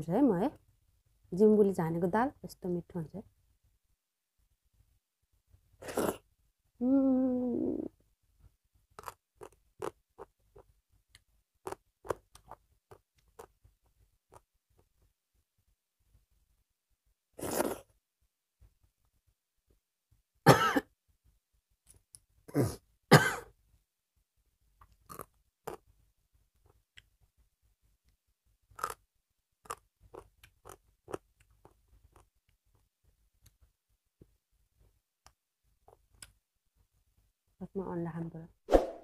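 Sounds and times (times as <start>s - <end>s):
mouth noises and chewing: 8.9s - 14.9s, 24.8s - 25.9s, 28.7s - 29.0s, 29.6s - 33.7s.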